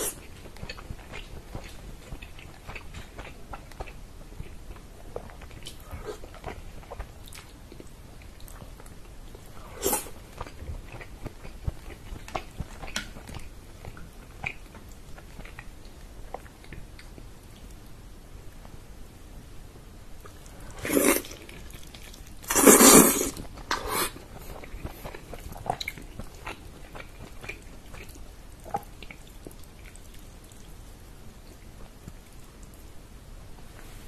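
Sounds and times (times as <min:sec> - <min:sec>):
chewing and mouth smacks: 0:00.1 - 0:17.8, 0:21.2 - 0:30.8.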